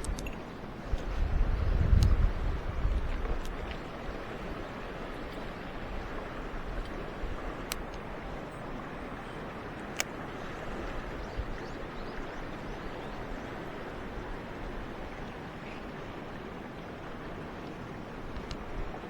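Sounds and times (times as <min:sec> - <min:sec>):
sharp clicks: 0:00.0 - 0:00.4
stream water rushing: 0:00.0 - 0:19.0.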